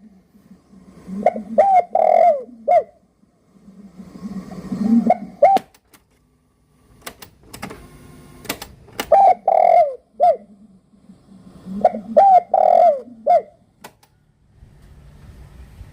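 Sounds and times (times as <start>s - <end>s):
bird cooing: 0.8s - 5.7s, 9.1s - 13.7s
sharp clicks: 7.0s - 7.8s, 8.4s - 9.2s, 13.8s - 14.2s.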